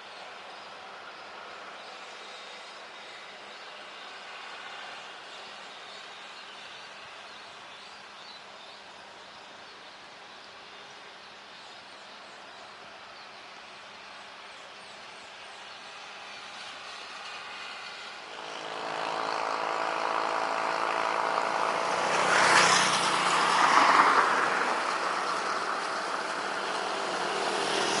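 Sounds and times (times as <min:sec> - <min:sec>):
jet airliner engines roaring: 0:12.7 - 0:28.0.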